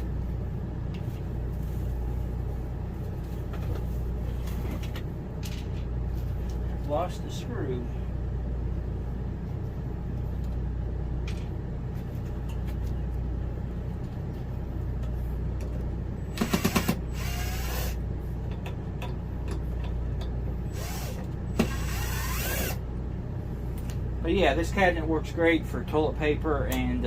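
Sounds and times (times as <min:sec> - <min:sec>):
steady low hum: 0:00.0 - 0:27.0
power drill driving screws into wood: 0:16.3 - 0:18.0, 0:20.7 - 0:22.8.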